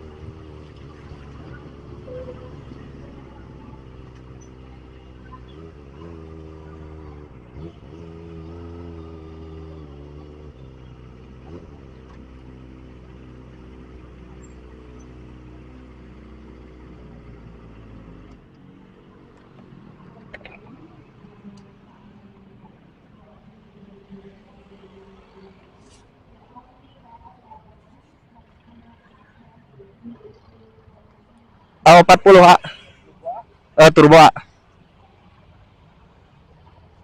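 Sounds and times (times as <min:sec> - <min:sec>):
motorcycle engine running at low revs: 0:00.0 - 0:25.8.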